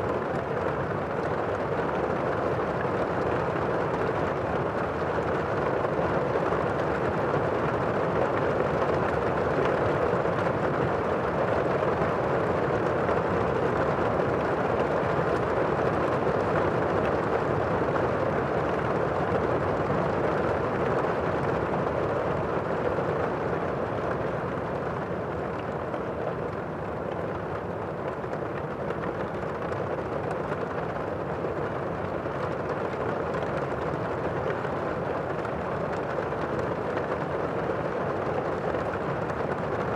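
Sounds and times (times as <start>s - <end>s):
muffled rain: 11.4s - 39.9s.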